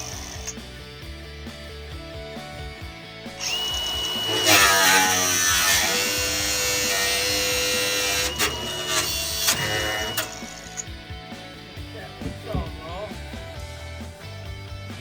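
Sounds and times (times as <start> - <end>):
background music: 0.0 - 15.0
power tool whining: 2.6 - 11.0.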